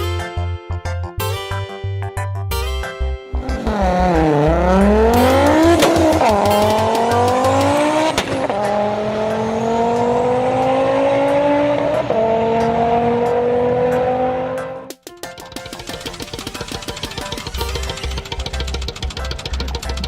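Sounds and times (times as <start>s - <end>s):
racing car engine revving: 3.4s - 14.9s.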